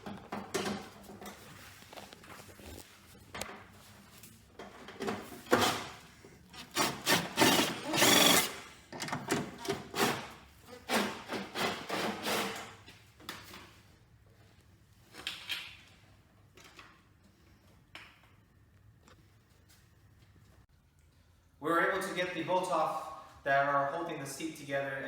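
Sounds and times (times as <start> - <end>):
hand tools scraping and knocking: 4.6 - 13.0.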